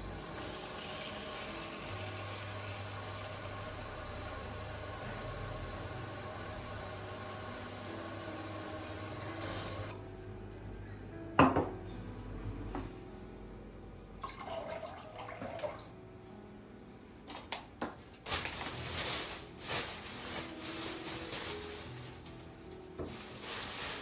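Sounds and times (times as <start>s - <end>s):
tap water running: 0.0s - 5.5s, 6.2s - 9.9s, 14.2s - 15.9s.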